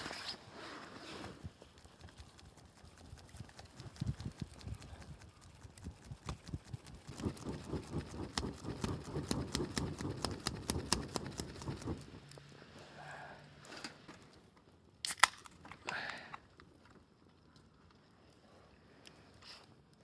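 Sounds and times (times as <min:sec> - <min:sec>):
campfire crackling and popping: 0:01.4 - 0:12.9.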